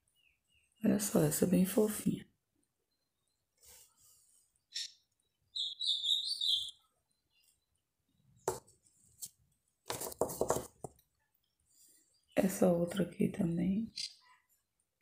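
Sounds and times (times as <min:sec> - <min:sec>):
high bird chirping: 0:04.6 - 0:08.4, 0:13.9 - 0:14.4.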